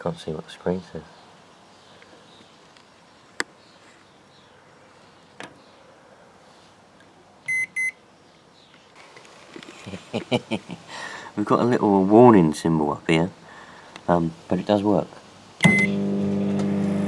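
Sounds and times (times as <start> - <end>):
microwave beeps: 7.5 - 8.0, 15.6 - 16.2.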